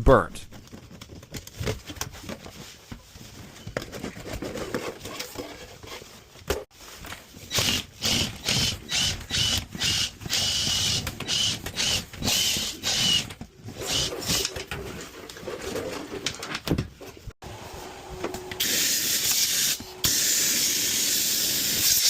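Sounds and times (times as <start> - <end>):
handling rustling: 0.5 - 7.4
power drill spinning brush: 7.3 - 14.6, 17.6 - 22.0.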